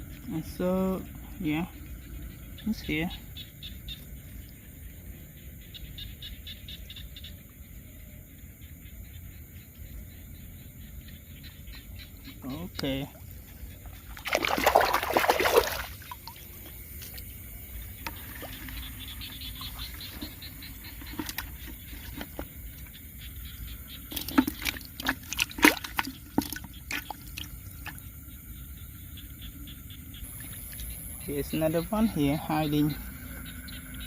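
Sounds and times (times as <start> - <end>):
shallow water splashing and trickling: 12.2 - 28.4, 30.1 - 33.0.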